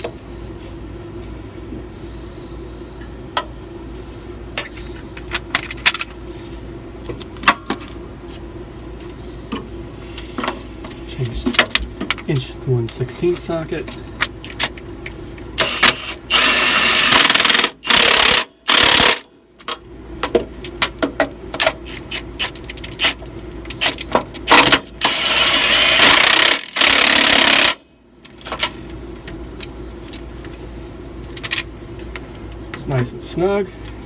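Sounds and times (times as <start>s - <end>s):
impact wrench bursts: 15.6s - 19.2s, 21.8s - 27.8s.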